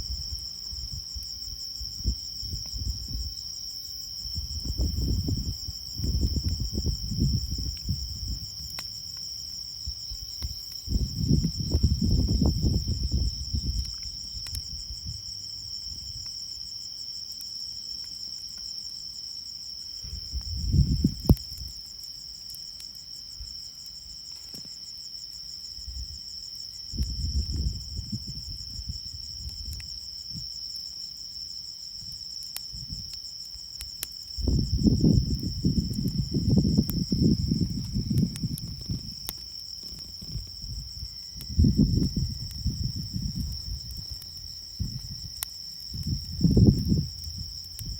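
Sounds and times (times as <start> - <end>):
insects chirring: 0.0 - 47.9
low rumbling gusts: 4.2 - 8.8, 9.8 - 15.3, 20.1 - 21.4, 34.4 - 39.3, 40.0 - 47.9.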